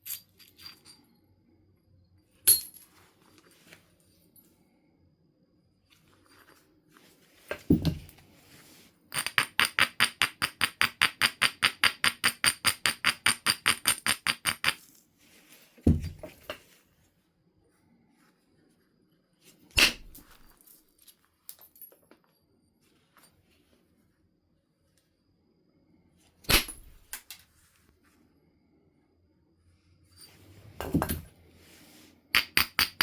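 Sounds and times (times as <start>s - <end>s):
low thud on stone: 7.7s - 8.1s, 15.9s - 16.3s.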